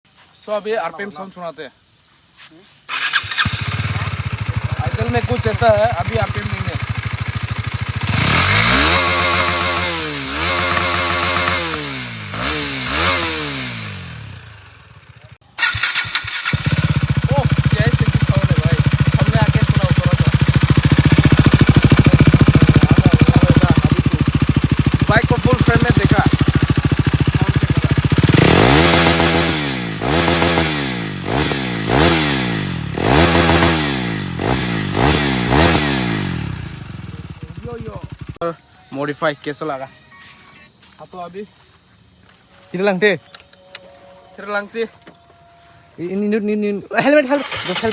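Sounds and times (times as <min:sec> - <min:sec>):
motorcycle engine revving: 0:02.9 - 0:38.5, 0:47.3 - 0:47.9.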